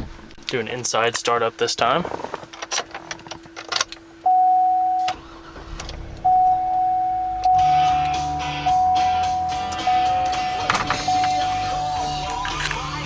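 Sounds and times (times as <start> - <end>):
dashboard warning chime dinging: 4.0 - 12.5
car engine running: 5.1 - 13.0.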